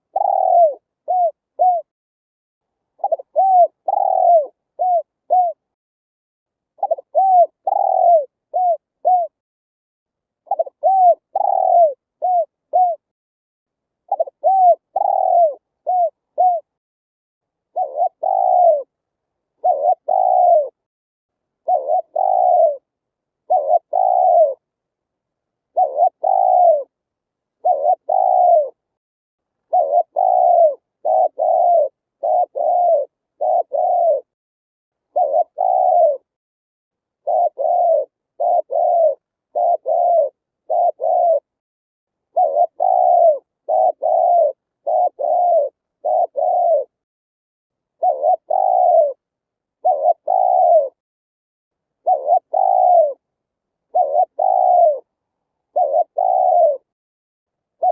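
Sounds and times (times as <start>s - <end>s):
dove cooing: 0.0s - 1.9s, 3.0s - 5.7s, 6.8s - 9.4s, 10.4s - 13.1s, 14.1s - 16.8s, 17.7s - 19.0s, 19.6s - 20.8s, 21.6s - 24.7s, 25.7s - 27.0s, 27.6s - 28.8s, 29.7s - 34.4s, 35.1s - 36.4s, 37.2s - 41.6s, 42.3s - 47.0s, 48.0s - 51.0s, 52.0s - 53.2s, 53.8s - 55.1s, 55.7s - 56.9s.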